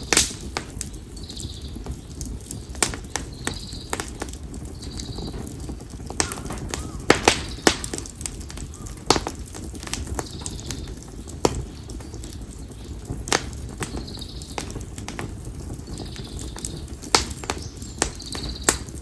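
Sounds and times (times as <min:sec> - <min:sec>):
campfire crackles and pops: 0:00.0 - 0:19.0
low rumble of flame: 0:00.0 - 0:19.0.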